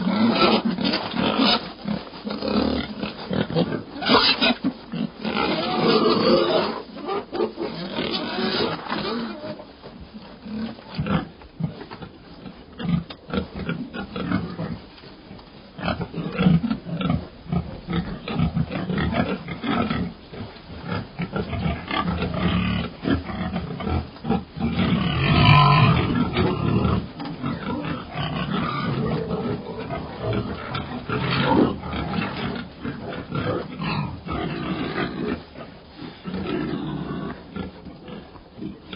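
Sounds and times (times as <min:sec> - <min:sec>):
pigs grunting and squealing: 0:00.0 - 0:09.7, 0:15.8 - 0:38.9.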